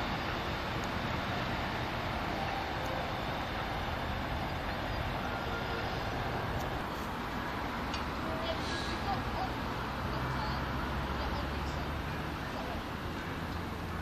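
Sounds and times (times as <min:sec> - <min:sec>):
distant train rumbling: 0:00.0 - 0:14.0.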